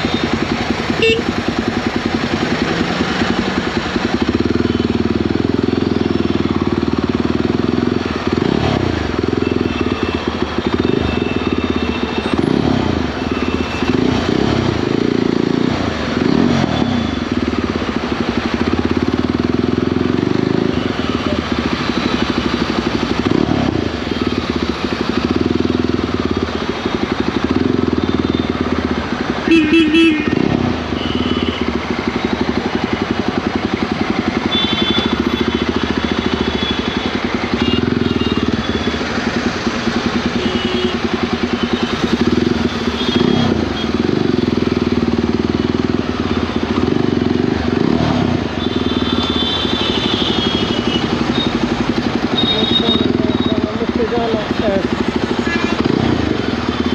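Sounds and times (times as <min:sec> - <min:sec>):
horn beeping: 0:00.0 - 0:01.4, 0:34.3 - 0:39.4, 0:40.2 - 0:44.3, 0:47.8 - 0:54.3
motorcycle engine cruising: 0:00.0 - 0:56.9
road and wind noise: 0:00.0 - 0:56.9.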